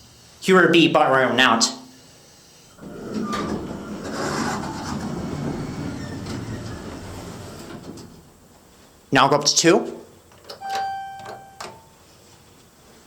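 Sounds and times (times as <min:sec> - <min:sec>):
elevator doors rumbling shut: 0:02.8 - 0:08.4
elevator door click: 0:10.4 - 0:11.9.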